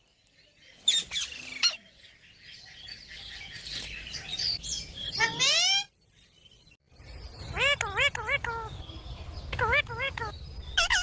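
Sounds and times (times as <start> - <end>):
parrot squawking: 5.2 - 5.9, 7.5 - 8.8, 9.6 - 11.0
parrot chattering and chirping: 7.4 - 11.0.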